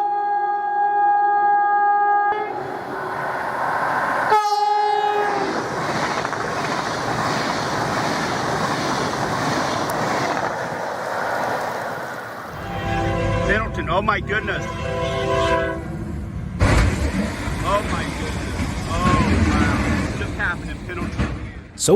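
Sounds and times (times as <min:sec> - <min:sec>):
train horn blowing: 0:00.0 - 0:02.6, 0:04.3 - 0:05.6, 0:12.5 - 0:16.0
train rumbling over rails: 0:02.4 - 0:21.9.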